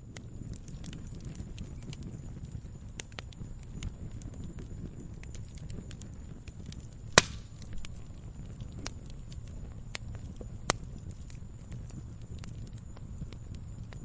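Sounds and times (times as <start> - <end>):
wood fire crackling: 0.0 - 14.0
logs popping: 5.2 - 14.0.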